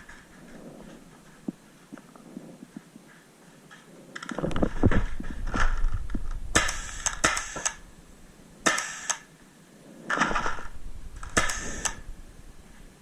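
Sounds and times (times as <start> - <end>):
rumble of movement: 0.0 - 8.7, 9.4 - 13.0
paintball markers firing: 6.5 - 7.8, 8.6 - 9.3, 10.1 - 12.0.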